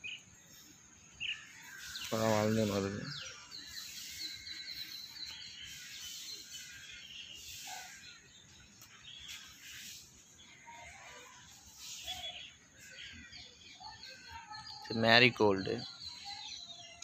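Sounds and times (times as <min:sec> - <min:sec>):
bird chirps: 0:00.0 - 0:17.0.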